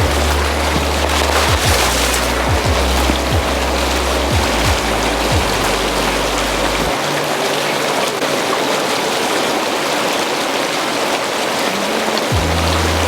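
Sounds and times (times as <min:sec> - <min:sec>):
music bass: 0:00.0 - 0:07.0, 0:12.3 - 0:13.0
hot tub water bubbling: 0:00.0 - 0:13.0.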